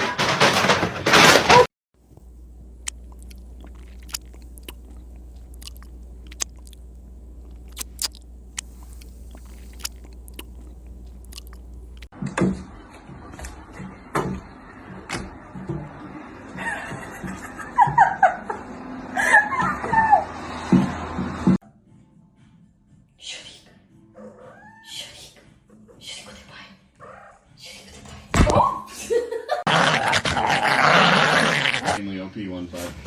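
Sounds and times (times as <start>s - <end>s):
knocks and thumps: 0.0s - 1.7s
steady low hum: 2.0s - 12.1s
chewing and crunching: 2.8s - 12.1s.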